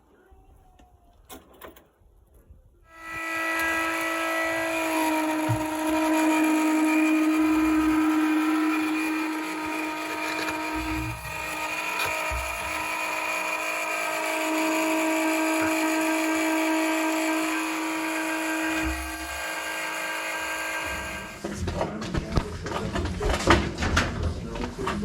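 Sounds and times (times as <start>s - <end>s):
power tool motor whining: 2.9s - 21.5s.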